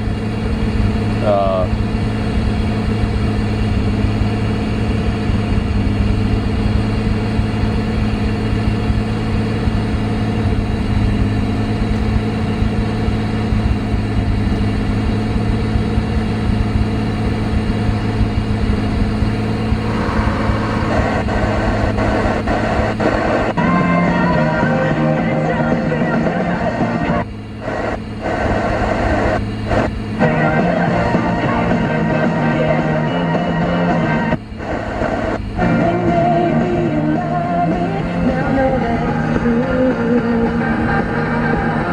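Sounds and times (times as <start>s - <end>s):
car engine humming: 0.0s - 41.9s
music: 23.6s - 27.3s, 30.2s - 34.4s, 35.6s - 41.9s.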